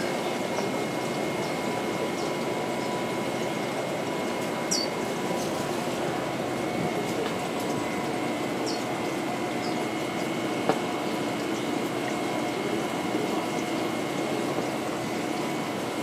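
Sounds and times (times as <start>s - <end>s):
small birds chirping: 0.2s - 3.0s, 4.7s - 5.0s, 8.6s - 8.9s, 9.5s - 10.4s.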